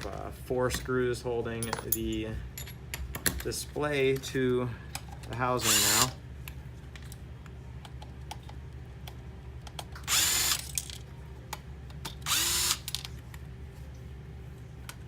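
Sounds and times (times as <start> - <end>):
electric screwdriver spinning: 5.6 - 6.2, 10.1 - 10.7, 12.2 - 12.9.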